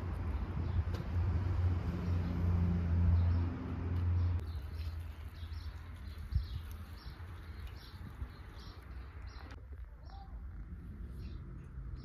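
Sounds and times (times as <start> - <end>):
small birds chirping: 3.1 - 12.0.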